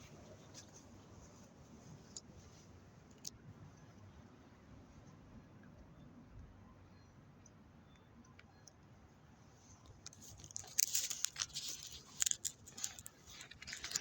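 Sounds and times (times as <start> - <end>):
crackling rustling near microphone: 0.0 - 4.0, 9.4 - 14.0.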